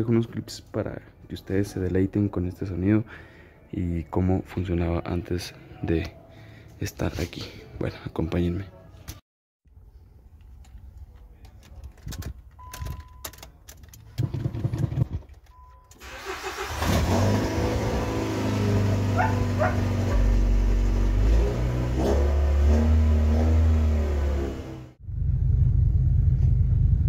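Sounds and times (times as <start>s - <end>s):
engine cranking: 13.3s - 17.6s
car engine revving: 16.2s - 26.9s.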